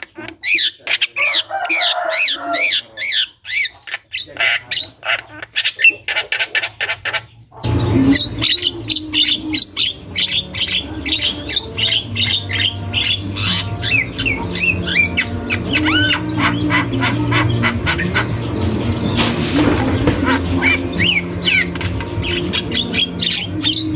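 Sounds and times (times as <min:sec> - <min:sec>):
myna calling: 0:00.0 - 0:23.9
steady low hum: 0:07.6 - 0:23.9.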